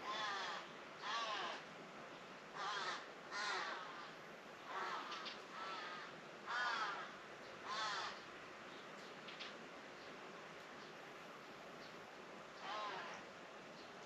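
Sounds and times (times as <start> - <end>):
crow cawing: 0.0 - 1.6, 2.5 - 8.3, 12.6 - 13.3.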